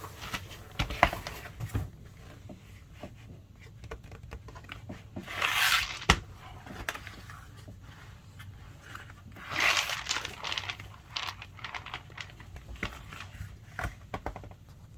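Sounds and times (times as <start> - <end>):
packaging crinkling: 9.5 - 13.3.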